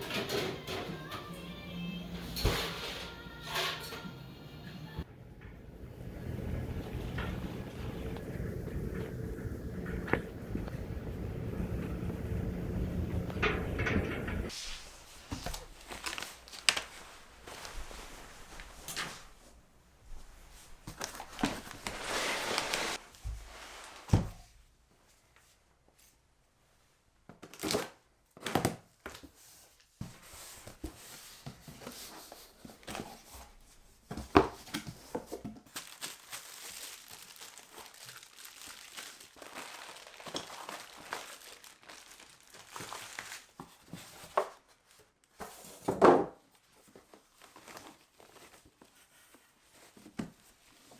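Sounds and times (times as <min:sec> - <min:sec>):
packaging crinkling and rustling: 0:15.1 - 0:19.2, 0:20.9 - 0:23.0, 0:34.3 - 0:50.9.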